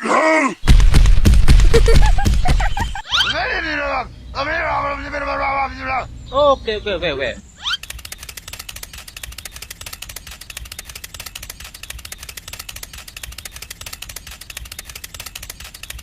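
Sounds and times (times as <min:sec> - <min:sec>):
toy tractor motor clicking: 0:07.7 - 0:16.0.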